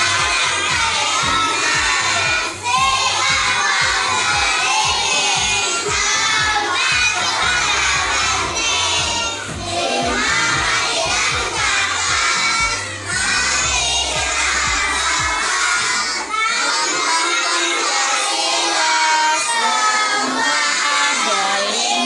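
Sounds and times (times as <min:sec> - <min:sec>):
recorded music with steady beat: 0:00.0 - 0:16.3
children singing loudly: 0:00.0 - 0:22.0.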